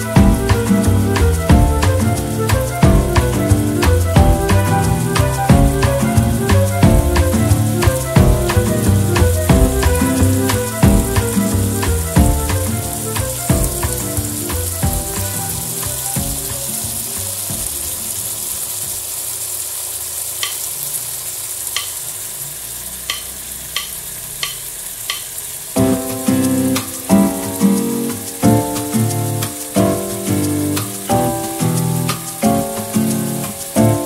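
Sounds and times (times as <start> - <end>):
background music: 0.0 - 18.1, 25.8 - 34.0
meat sizzling in a wok: 0.0 - 34.0.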